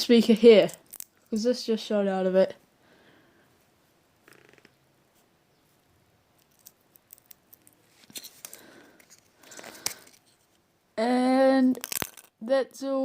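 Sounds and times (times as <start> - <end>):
rustling and scraping: 3.6 - 10.6
light clicks of phone parts: 6.4 - 10.6.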